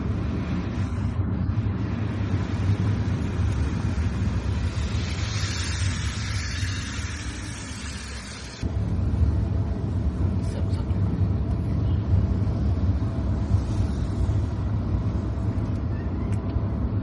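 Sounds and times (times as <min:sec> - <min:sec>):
car road rumble: 0:00.0 - 0:17.0
tyre hiss on wet road: 0:00.1 - 0:08.7, 0:13.3 - 0:15.4.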